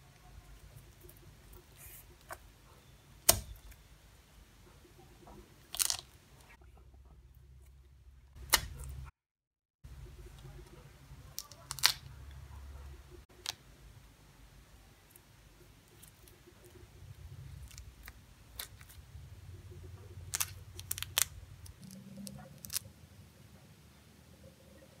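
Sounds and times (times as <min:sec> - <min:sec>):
pineapple fruitlets snapping: 0:03.2 - 0:03.8, 0:05.7 - 0:06.1, 0:08.4 - 0:08.8, 0:11.4 - 0:12.1, 0:20.3 - 0:21.9.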